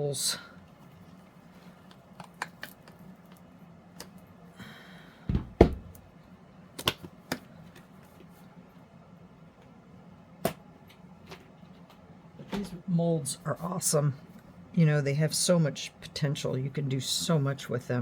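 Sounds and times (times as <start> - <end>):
heavy knock on table: 5.3 - 6.0.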